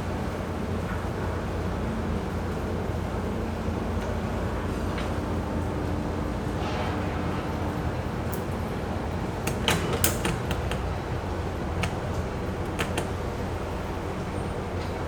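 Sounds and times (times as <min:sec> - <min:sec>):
boat engine humming: 0:08.6 - 0:15.0
sharp clicks and knocks: 0:09.3 - 0:14.9.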